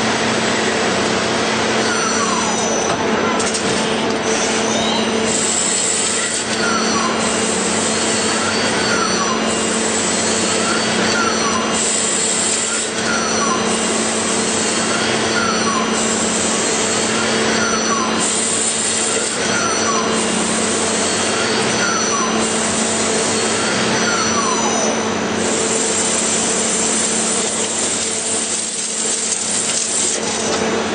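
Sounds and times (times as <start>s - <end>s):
rising and falling machine whine: 19.0s - 28.6s.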